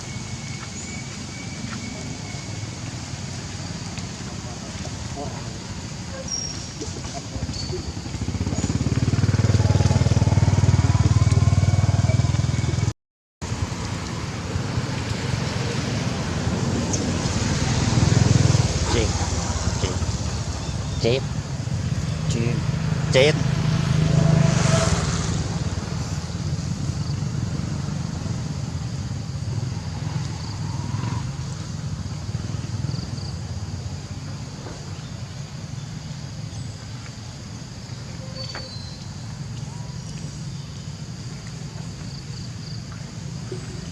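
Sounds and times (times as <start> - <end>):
faint traffic hum: 0.0 - 43.9
vehicle engine rumbling: 0.0 - 43.9
small engine running: 7.4 - 12.9.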